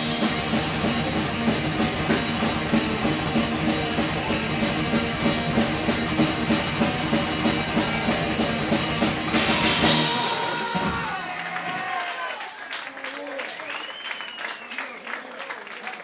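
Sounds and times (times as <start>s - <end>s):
cymbal crash: 0.0s - 11.4s
live rock band playing: 0.0s - 11.8s.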